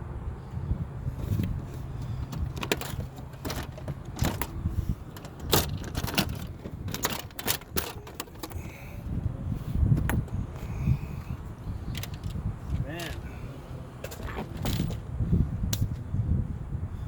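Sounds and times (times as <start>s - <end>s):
panel clicking and rattling: 2.3s - 8.6s.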